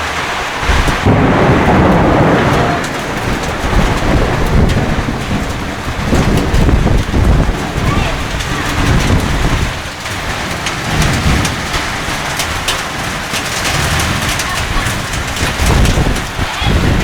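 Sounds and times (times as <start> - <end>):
heavy rain pouring: 0.0 - 17.0
low thunder rumbles: 0.0 - 17.0.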